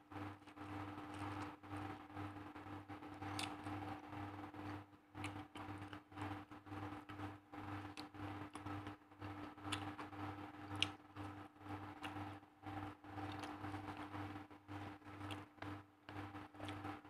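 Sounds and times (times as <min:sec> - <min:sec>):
chewing mouth clicks: 0:03.2 - 0:04.0, 0:04.6 - 0:06.4, 0:07.8 - 0:11.4, 0:12.0 - 0:14.2, 0:15.2 - 0:15.7, 0:16.6 - 0:16.9.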